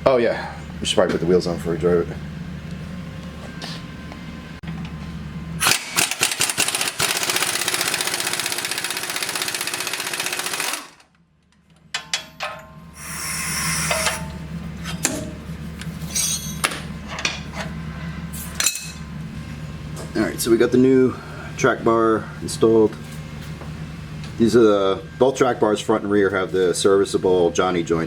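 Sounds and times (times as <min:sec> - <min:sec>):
steady low hum: 0:00.0 - 0:05.9, 0:11.0 - 0:28.0
pneumatic impact wrench hammering: 0:05.6 - 0:11.0, 0:12.0 - 0:14.4
metal clanks: 0:11.9 - 0:12.8.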